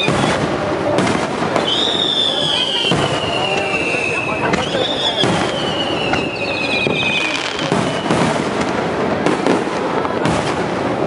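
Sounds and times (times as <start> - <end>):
fireworks bangs and crackling: 0.0 - 11.0
firework whistle gliding down: 1.6 - 8.3.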